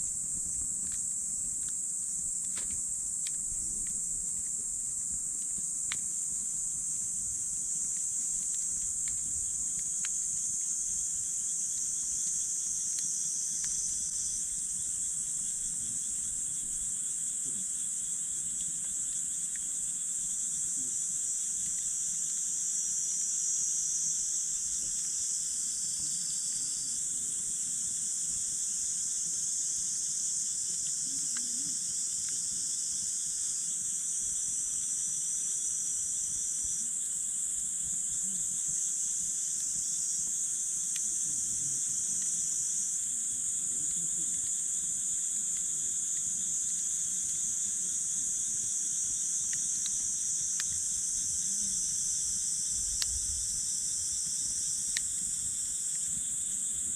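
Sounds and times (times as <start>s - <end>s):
night insects chorus: 0.0s - 56.9s
campfire pops: 0.2s - 6.2s, 6.9s - 10.8s, 48.5s - 51.8s, 54.1s - 56.3s.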